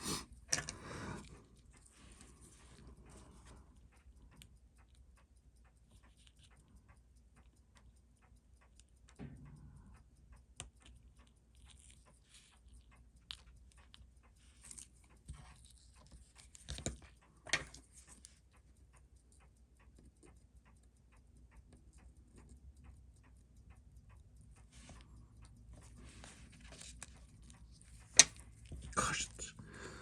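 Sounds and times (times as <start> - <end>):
fast watch ticking: 0.0 - 30.0
clicks and knocks of handling: 14.6 - 18.4.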